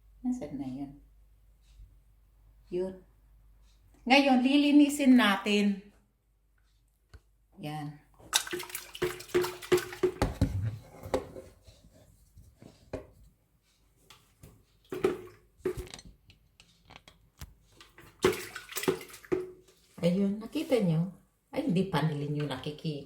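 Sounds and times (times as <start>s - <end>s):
liquid sloshing inside a pot: 8.2s - 12.1s, 14.1s - 16.2s, 17.6s - 20.0s.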